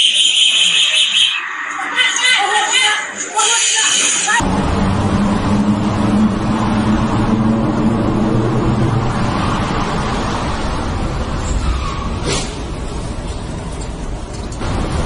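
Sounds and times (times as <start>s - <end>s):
road noise: 0.0s - 15.0s
low engine hum: 4.4s - 11.6s.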